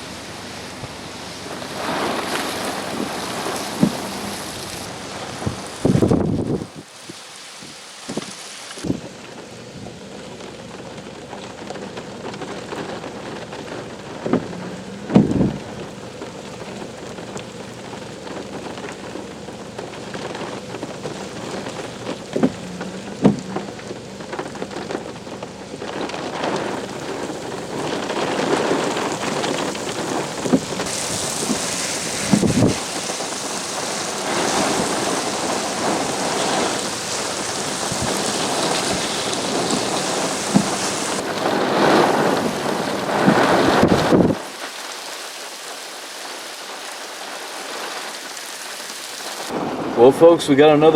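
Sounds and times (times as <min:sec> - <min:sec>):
heavy rain falling: 0:00.0 - 0:50.9
short low thumps: 0:14.2 - 0:15.8.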